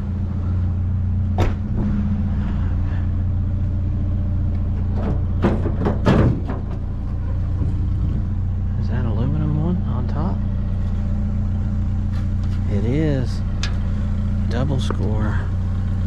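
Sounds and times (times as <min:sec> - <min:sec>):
truck engine running: 0:00.0 - 0:16.0
clunks: 0:01.2 - 0:03.2, 0:04.3 - 0:08.6, 0:10.6 - 0:12.7, 0:13.4 - 0:15.1.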